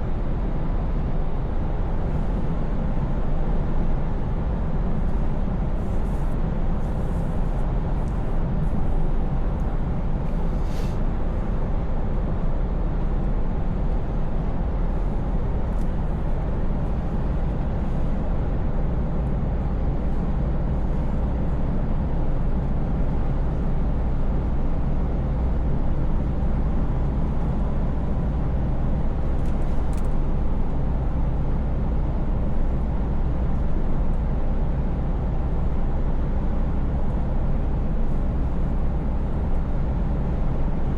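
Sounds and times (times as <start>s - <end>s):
road and tyre noise: 0.0s - 40.9s
truck diesel engine drone: 0.0s - 40.9s.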